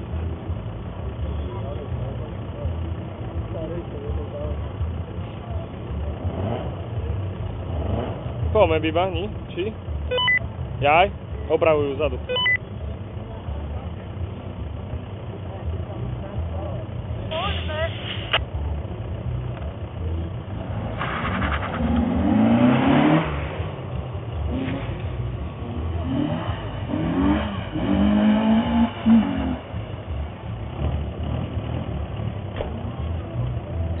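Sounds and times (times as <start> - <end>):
car engine revving hard: 6.2 - 6.9, 7.6 - 8.4, 20.5 - 32.4.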